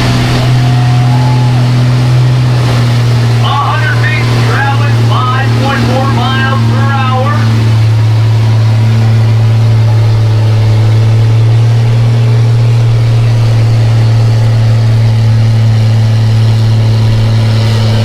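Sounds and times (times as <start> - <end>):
truck engine running loudly: 0.0 - 18.0.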